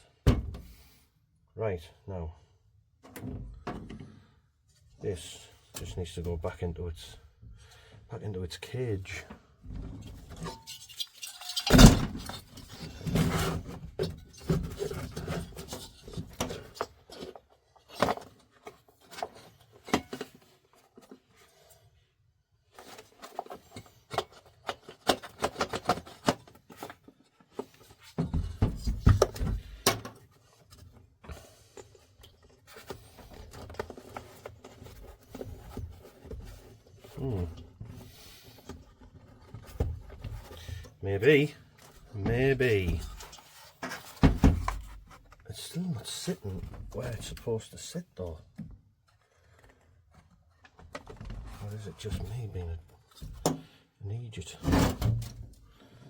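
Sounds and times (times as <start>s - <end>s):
parts clicking and scraping: 10.0s - 21.2s.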